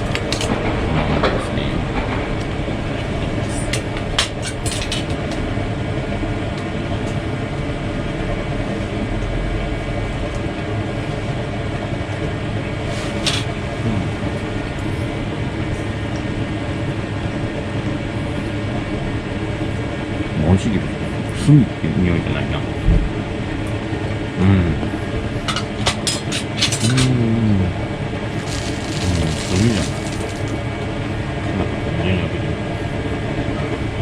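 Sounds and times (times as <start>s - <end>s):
chicken grilling over charcoal: 28.3s - 30.6s.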